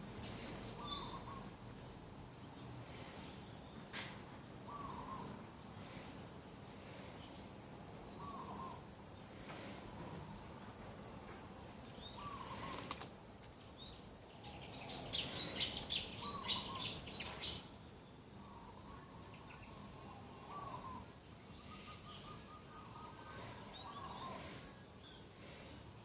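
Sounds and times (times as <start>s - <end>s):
fainter lower bird calls: 0.0s - 1.6s, 2.4s - 6.1s, 7.1s - 9.4s, 11.4s - 13.0s, 13.6s - 25.8s
steady background noise: 0.0s - 26.0s.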